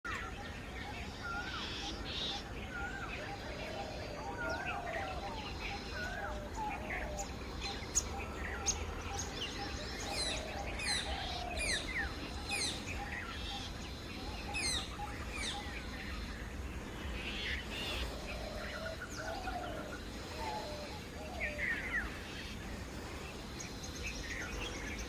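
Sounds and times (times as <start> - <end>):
background birdsong: 0.0 - 25.0
downward-sweeping bird calls: 0.1 - 25.0.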